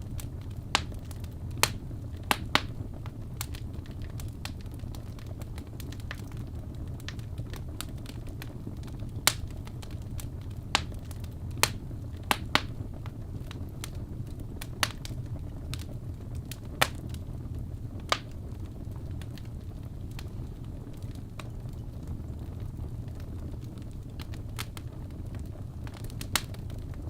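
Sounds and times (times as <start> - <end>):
fire low rumble: 0.0 - 27.0
logs crackling and popping in fire: 0.0 - 27.0.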